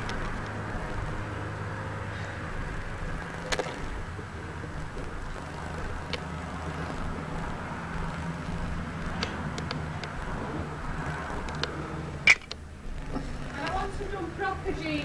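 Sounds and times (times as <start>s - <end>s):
steady low hum: 0.0s - 15.0s
short sharp clicks: 11.4s - 12.6s.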